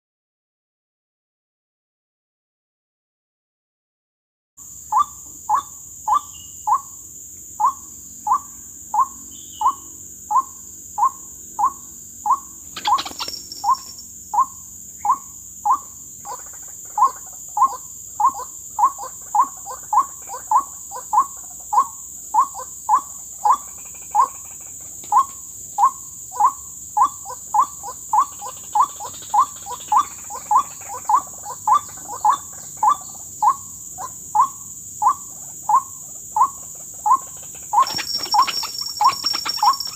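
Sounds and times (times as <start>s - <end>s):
waterhen calling kook: 9.0s - 24.4s, 25.1s - 39.9s.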